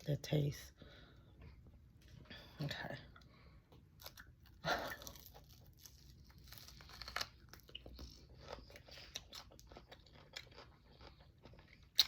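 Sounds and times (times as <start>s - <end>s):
crinkling and tearing: 4.0s - 10.6s.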